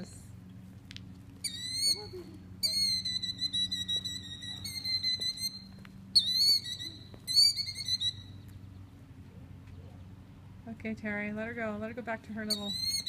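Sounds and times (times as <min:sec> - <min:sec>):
bird alarm calls: 0:01.4 - 0:09.0, 0:12.4 - 0:13.0.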